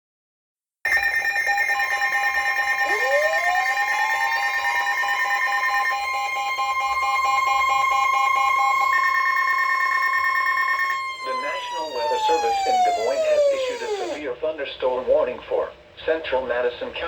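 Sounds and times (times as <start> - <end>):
high-pitched warning alarm tone: 1.5 - 14.2
upward sliding tone: 10.9 - 14.2.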